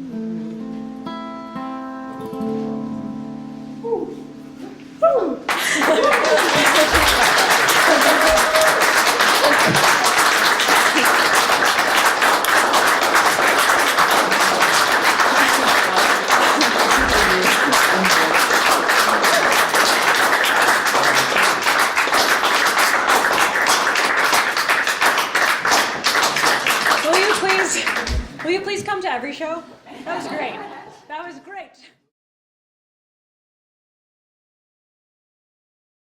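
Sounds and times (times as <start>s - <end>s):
audience applauding: 5.5s - 28.8s.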